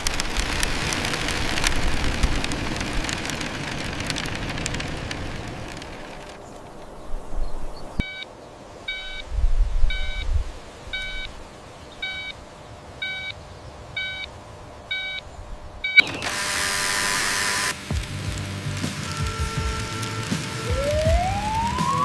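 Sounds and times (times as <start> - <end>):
electronic warning beeps: 8.0 - 8.3, 8.9 - 9.3, 9.9 - 10.3, 11.0 - 11.3, 12.0 - 12.4, 13.0 - 13.4, 14.0 - 14.3, 14.9 - 15.2, 15.8 - 17.7.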